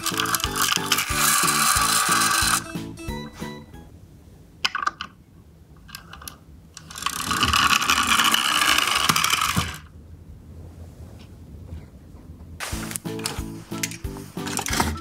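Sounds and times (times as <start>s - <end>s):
toy truck friction motor whirring: 0.0s - 2.8s, 6.8s - 9.9s.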